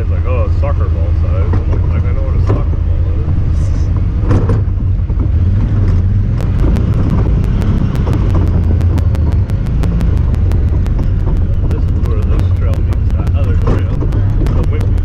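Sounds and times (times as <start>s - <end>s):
camera ticking: 6.4s - 15.0s.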